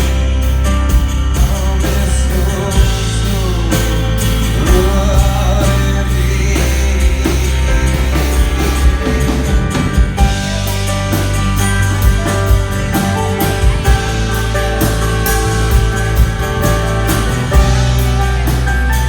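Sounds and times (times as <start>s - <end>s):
bass guitar: 0.0s - 19.0s
drum kit: 0.0s - 19.0s
electric guitars: 0.0s - 19.0s
person singing: 1.4s - 10.9s.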